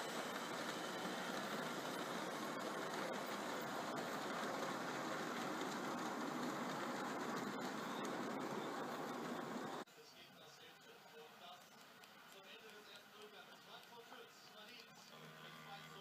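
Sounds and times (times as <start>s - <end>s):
model train rumbling: 0.0s - 9.8s.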